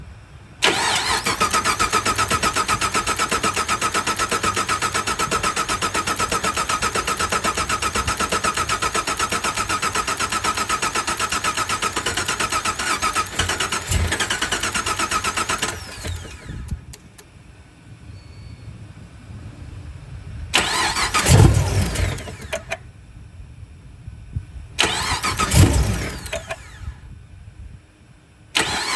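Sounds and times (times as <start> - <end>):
car engine cranking on starter: 0.6 - 17.4, 20.5 - 22.8, 24.8 - 27.1, 28.6 - 28.9.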